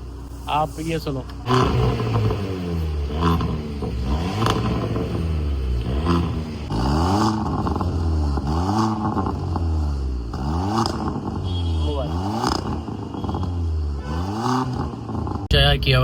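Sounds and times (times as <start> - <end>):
car exhaust revving in blips: 1.3 - 15.6.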